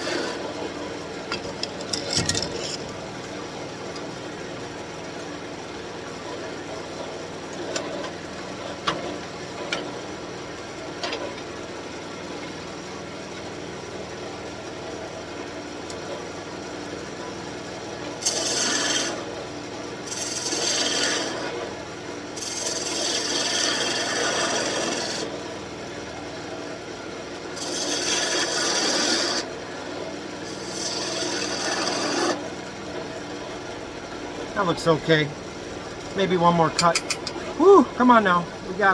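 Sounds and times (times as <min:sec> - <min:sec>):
turning tool scraping wood: 0:00.0 - 0:00.5, 0:01.3 - 0:03.2, 0:18.2 - 0:19.2, 0:20.1 - 0:21.6, 0:22.4 - 0:25.3, 0:27.6 - 0:29.5, 0:30.4 - 0:32.4
wood lathe running: 0:18.2 - 0:19.3, 0:20.0 - 0:21.6, 0:22.4 - 0:25.3, 0:27.5 - 0:29.6, 0:30.4 - 0:32.4.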